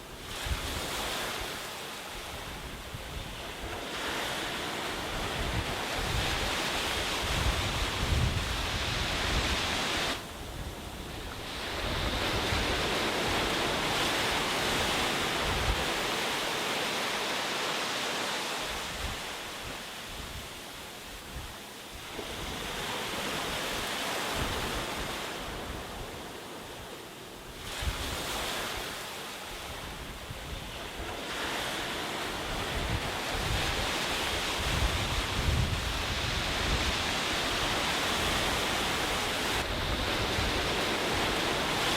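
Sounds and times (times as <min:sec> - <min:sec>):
wind rumble on microphone: 0:00.0 - 0:16.3, 0:18.6 - 0:26.6, 0:27.5 - 0:41.9
sea waves breaking on a beach: 0:00.0 - 0:41.9.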